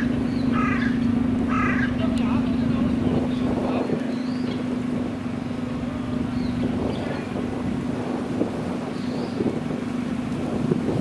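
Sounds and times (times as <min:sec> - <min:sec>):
car engine idling: 0:00.0 - 0:03.6, 0:04.4 - 0:07.9.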